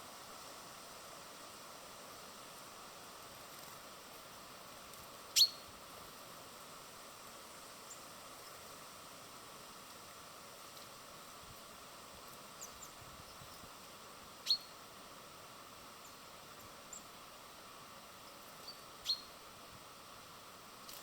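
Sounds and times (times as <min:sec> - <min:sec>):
steady background hiss: 0:00.0 - 0:21.0
small birds calling: 0:05.3 - 0:05.7, 0:12.4 - 0:13.7, 0:14.4 - 0:14.8, 0:18.3 - 0:19.4.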